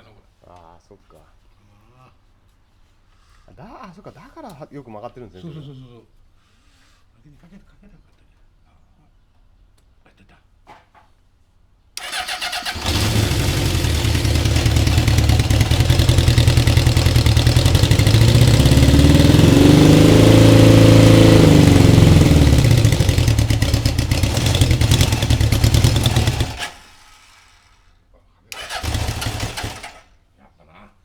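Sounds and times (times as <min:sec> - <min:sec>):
motorcycle engine starting and running: 0:12.0 - 0:27.7, 0:28.6 - 0:30.1.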